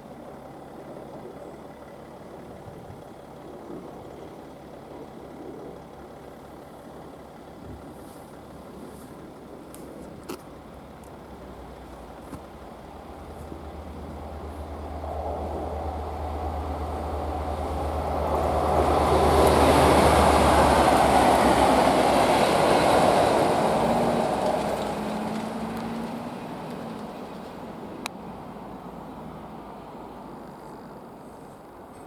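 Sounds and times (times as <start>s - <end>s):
diesel engine drone: 0.0s - 32.0s
train rumble: 7.3s - 32.0s.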